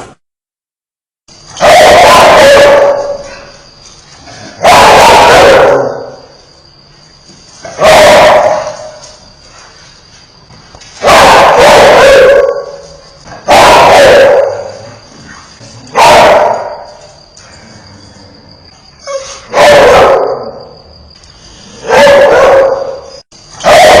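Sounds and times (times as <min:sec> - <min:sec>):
dog barking fiercely: 0:01.5 - 0:03.5, 0:04.3 - 0:06.2, 0:07.6 - 0:09.0, 0:11.0 - 0:14.9, 0:15.9 - 0:17.0, 0:19.1 - 0:20.7, 0:21.8 - 0:24.0.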